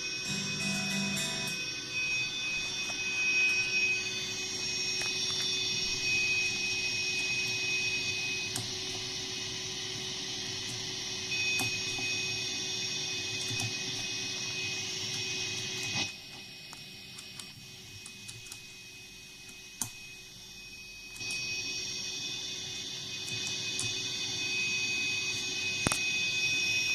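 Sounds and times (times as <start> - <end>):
thin high whine: 0.0 - 16.2, 17.8 - 26.9.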